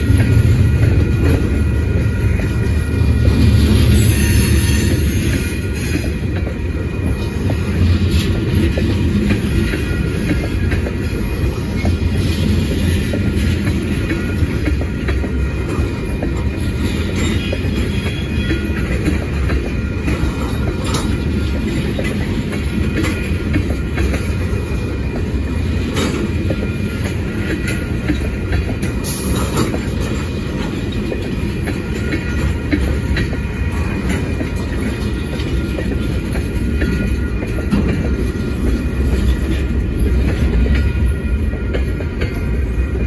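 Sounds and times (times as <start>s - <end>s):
rumble of steel wheels on rail: 0.0s - 43.0s
clacks over rail joints: 4.9s - 42.6s.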